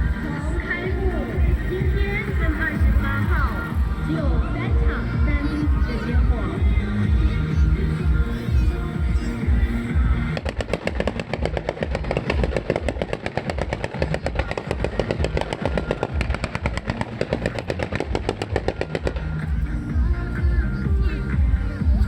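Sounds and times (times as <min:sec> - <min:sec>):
show music with steady beat: 0:00.0 - 0:22.0
fireworks banging: 0:10.4 - 0:19.3.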